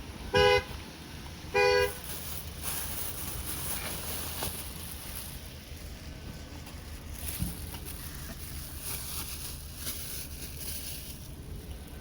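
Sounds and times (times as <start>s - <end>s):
low outdoor rumble: 0.0s - 12.0s
wind: 0.0s - 12.0s
two-tone car horn honk: 0.3s - 0.7s, 1.5s - 2.0s.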